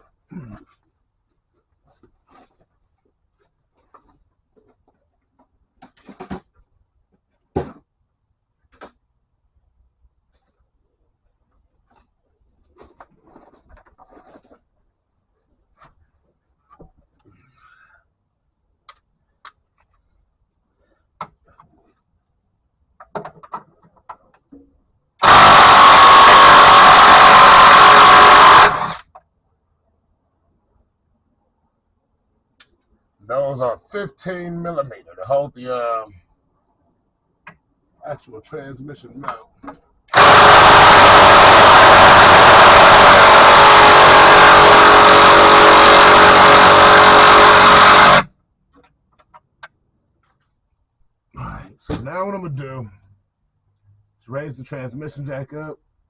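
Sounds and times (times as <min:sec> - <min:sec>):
handheld power tool running: 0:25.2 - 0:29.0, 0:40.1 - 0:48.3
impact wrench hammering: 0:25.2 - 0:29.0, 0:40.1 - 0:48.3.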